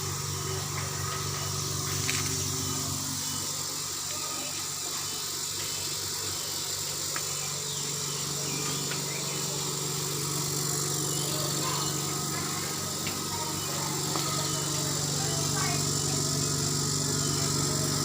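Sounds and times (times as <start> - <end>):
compressor engine running: 0.0 - 18.0.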